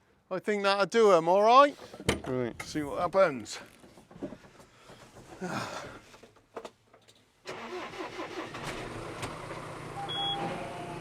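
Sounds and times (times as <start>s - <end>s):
engine starting and idling: 7.4s - 11.0s.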